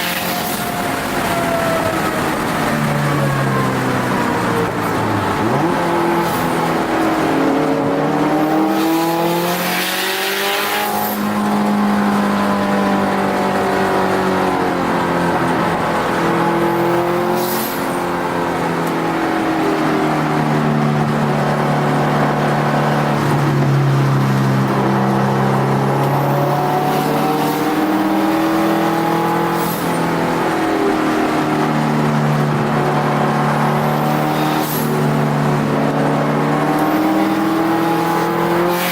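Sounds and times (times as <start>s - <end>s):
car engine accelerating and shifting: 0.0s - 38.9s.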